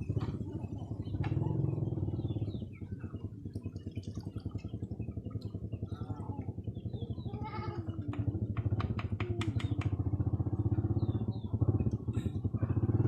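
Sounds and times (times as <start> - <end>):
small engine pulsing: 0.0 - 13.0
sharp clicks: 8.2 - 10.0.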